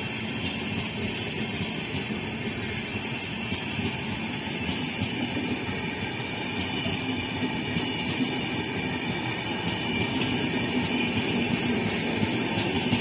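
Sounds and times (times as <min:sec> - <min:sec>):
train coaches passing: 0:00.0 - 0:13.0
wheels rushing on rail: 0:00.0 - 0:13.0.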